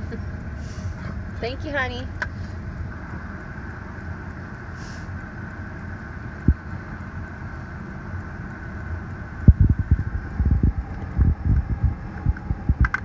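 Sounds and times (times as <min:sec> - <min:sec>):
car idling hum: 0:00.0 - 0:13.0
dull low thumps and bumps: 0:06.4 - 0:06.7, 0:09.4 - 0:13.0.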